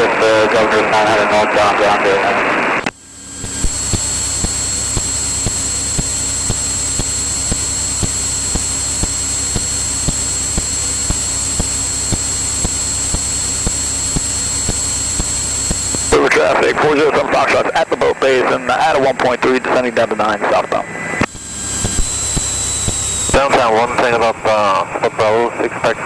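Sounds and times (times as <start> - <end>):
propeller aircraft cabin drone: 0.0 - 26.0
thin high whine: 0.0 - 26.0
regular ticks: 3.4 - 16.1, 21.2 - 23.4.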